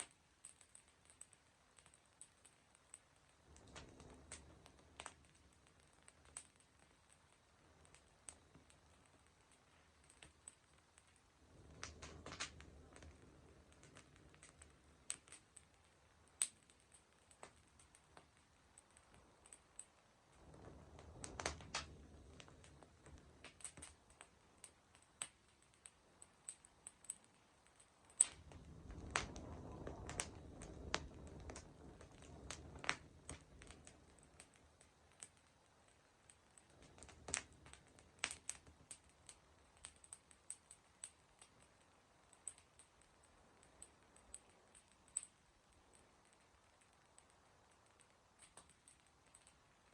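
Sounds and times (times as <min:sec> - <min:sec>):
fire pops and snaps: 0:00.0 - 0:49.9
wood fire crackling: 0:00.0 - 0:49.9.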